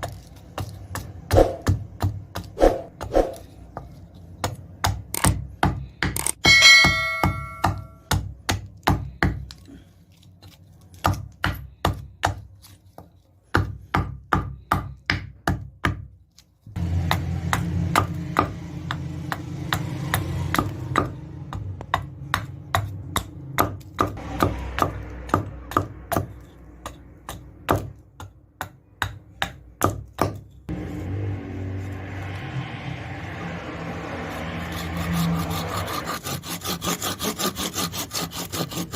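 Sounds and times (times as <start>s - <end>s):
hammer striking metal on anvil: 6.3s - 8.2s.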